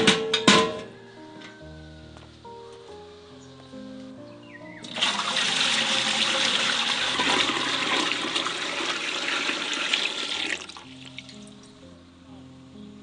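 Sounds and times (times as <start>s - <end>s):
running water splashing: 4.8s - 11.6s.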